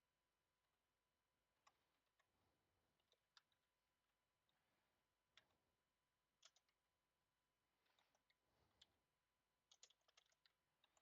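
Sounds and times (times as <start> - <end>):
mouse and keyboard clicks: 3.0 - 3.7, 6.3 - 6.8, 7.8 - 9.0, 9.6 - 11.0.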